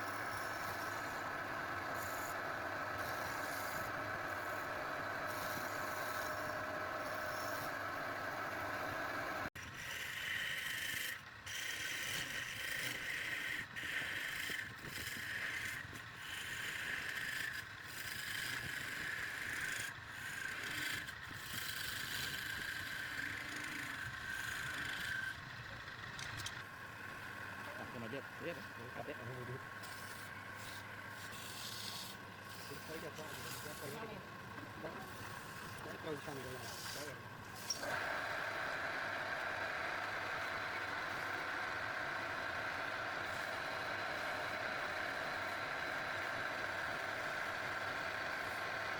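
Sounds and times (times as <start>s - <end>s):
steady machine sound: 0.0s - 48.9s
scraping strokes on wood: 9.8s - 25.4s, 27.6s - 41.4s.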